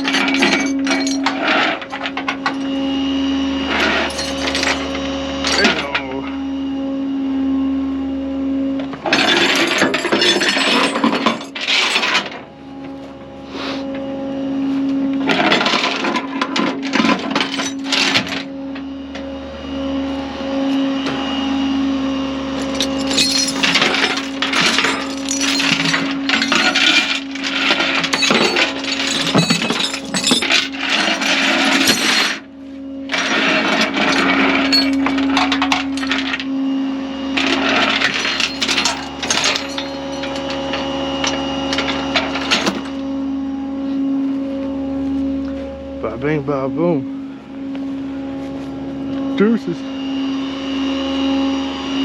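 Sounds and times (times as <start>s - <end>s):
metal chains clanking: 0.0s - 2.6s, 3.7s - 6.0s, 9.1s - 12.3s, 16.8s - 18.5s, 22.6s - 32.4s, 33.1s - 36.4s, 37.4s - 43.0s
engine hum: 0.0s - 51.6s.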